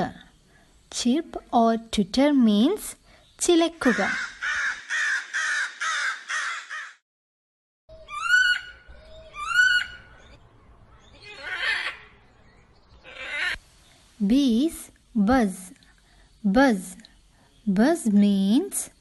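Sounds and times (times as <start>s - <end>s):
crow cawing: 3.8s - 7.0s
rising hooked bird calls: 7.9s - 10.4s
faint rasping bird calls: 13.0s - 13.6s.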